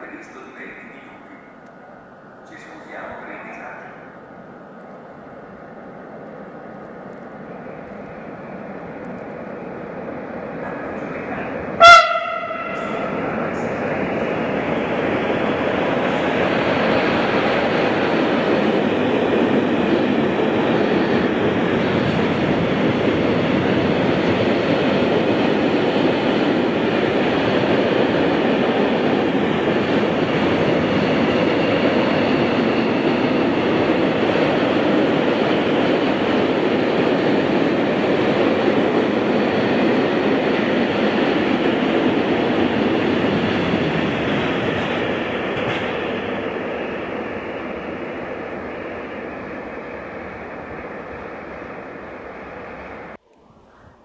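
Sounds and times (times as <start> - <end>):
freight train wheels on rails: 0.0 - 53.2.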